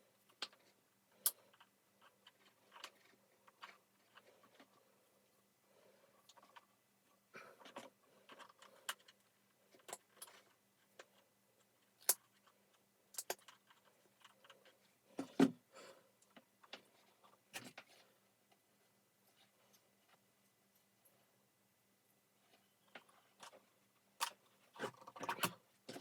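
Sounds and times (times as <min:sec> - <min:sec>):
plastic parts clicking and rattling: 0:00.2 - 0:04.8, 0:06.1 - 0:15.6, 0:16.2 - 0:18.1, 0:22.5 - 0:26.0.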